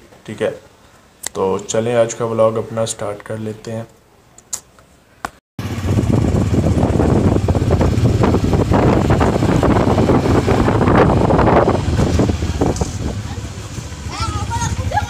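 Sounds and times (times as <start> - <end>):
motorcycle engine running: 5.6 - 15.0
wind noise on microphone: 5.6 - 15.0.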